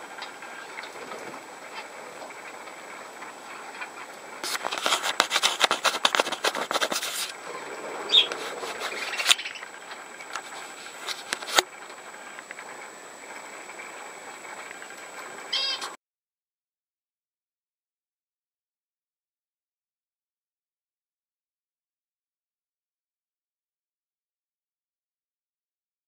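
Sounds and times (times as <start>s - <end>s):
budgerigar high squeak: 8.1s - 8.4s, 15.5s - 16.0s
budgerigars cracking seeds: 8.1s - 9.7s.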